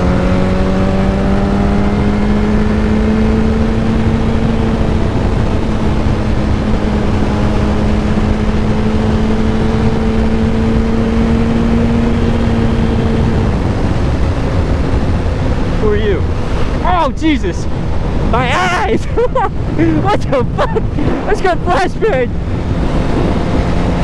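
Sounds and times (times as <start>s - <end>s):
constant rushing noise: 0.0s - 24.0s
motorcycle engine cruising: 0.0s - 24.0s.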